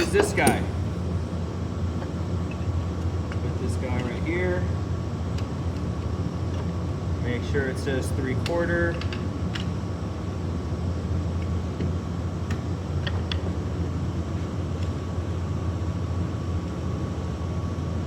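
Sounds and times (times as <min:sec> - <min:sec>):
tool clicks: 0:00.0 - 0:00.9
faint steady whine: 0:00.0 - 0:18.0
low mechanical hum: 0:00.0 - 0:18.0.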